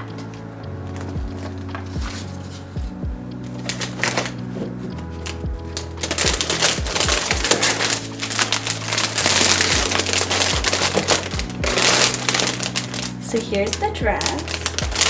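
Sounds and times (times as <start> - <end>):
background music with bass: 0.0 - 15.0
packaging rustling: 3.5 - 15.0.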